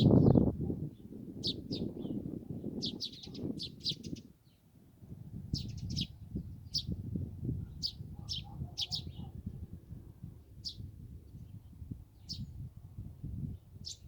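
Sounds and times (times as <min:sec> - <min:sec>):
small songbirds chirping: 0:00.0 - 0:14.0.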